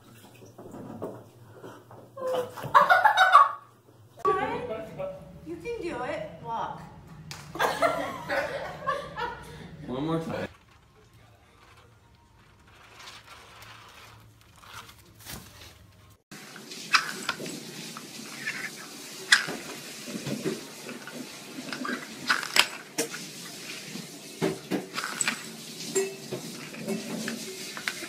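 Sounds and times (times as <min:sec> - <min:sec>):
plastic lids clattering on wooden floor: 0:18.3 - 0:23.2, 0:24.4 - 0:28.0.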